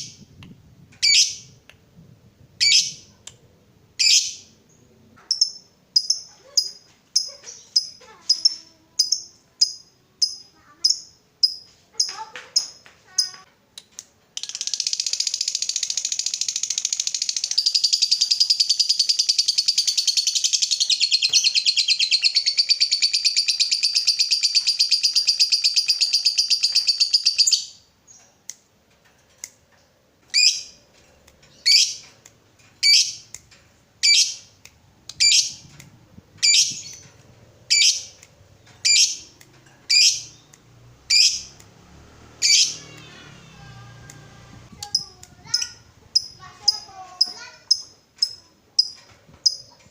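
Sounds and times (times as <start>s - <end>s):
lovebird chattering trill: 14.4s - 27.8s, 31.5s - 32.0s, 32.8s - 33.3s, 34.0s - 34.5s, 35.1s - 35.7s, 36.4s - 37.1s, 37.7s - 38.2s, 38.8s - 40.5s, 41.1s - 41.5s
sharp bird chirps: 36.4s - 37.1s, 38.8s - 41.6s.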